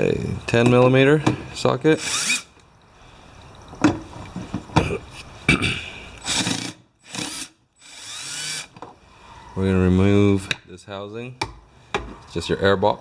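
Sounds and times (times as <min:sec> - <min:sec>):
short rasping bursts: 0:02.0 - 0:02.5, 0:06.2 - 0:08.7.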